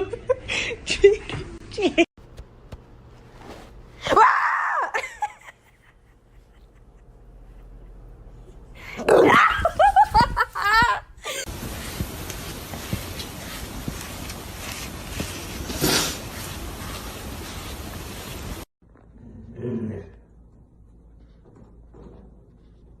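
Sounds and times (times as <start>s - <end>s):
even hiss: 11.5s - 18.7s.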